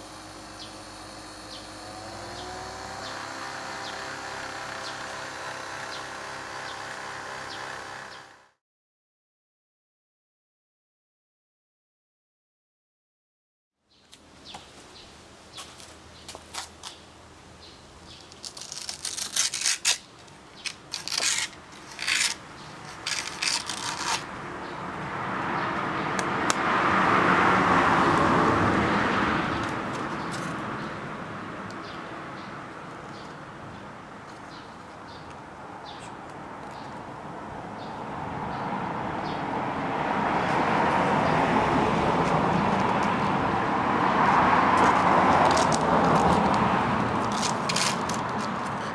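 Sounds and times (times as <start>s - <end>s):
sander grinding workpiece: 0.0s - 8.5s, 20.6s - 24.8s, 40.3s - 48.9s
disc sander motor hum: 0.0s - 8.6s.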